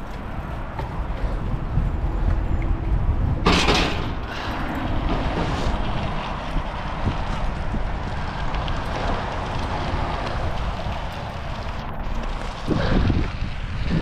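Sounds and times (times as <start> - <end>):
wind on microphone: 1.0 - 14.0
bicycle tyres rolling on gravel: 4.2 - 14.0.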